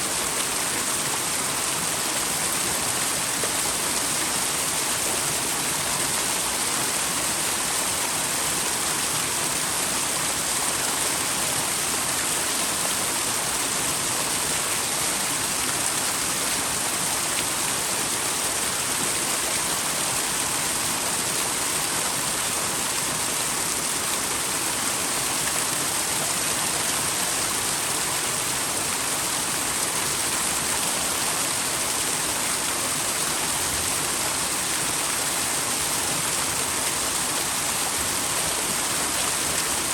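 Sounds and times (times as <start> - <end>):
waterfall pouring and splashing: 0.0 - 39.9.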